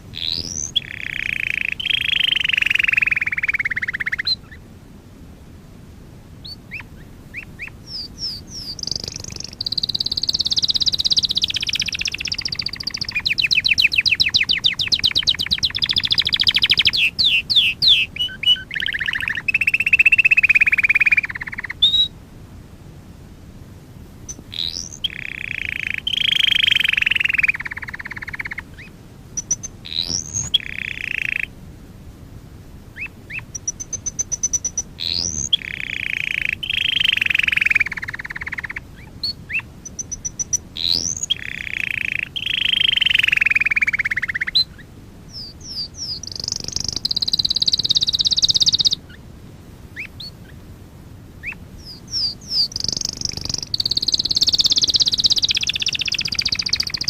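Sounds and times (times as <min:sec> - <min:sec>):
canary singing trills: 0:00.0 - 0:04.6, 0:06.4 - 0:22.2, 0:24.2 - 0:31.6, 0:32.9 - 0:49.3, 0:49.9 - 0:50.6, 0:51.4 - 0:57.0.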